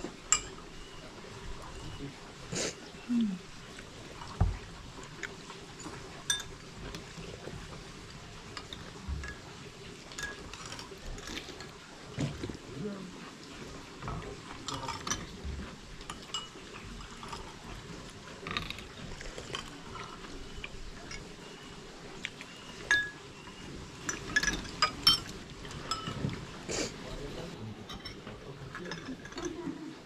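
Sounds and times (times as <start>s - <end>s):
cutlery clinking on plates: 5.8s - 6.6s, 10.1s - 11.7s, 14.6s - 15.4s, 16.1s - 17.6s, 24.0s - 26.4s, 27.1s - 29.8s.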